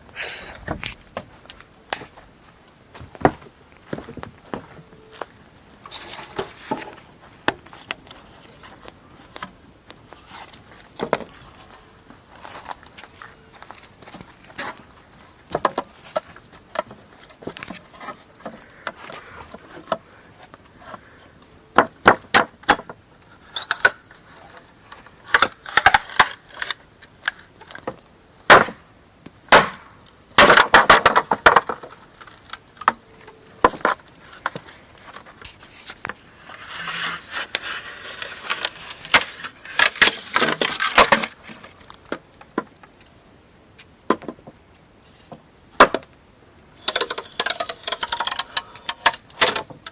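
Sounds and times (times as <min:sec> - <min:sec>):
wood splintering and scraping: 0:05.8 - 0:21.2, 0:30.4 - 0:42.7, 0:46.8 - 0:49.9
wood being chopped and split: 0:21.8 - 0:23.0, 0:27.8 - 0:28.8, 0:29.5 - 0:31.9, 0:45.8 - 0:46.1.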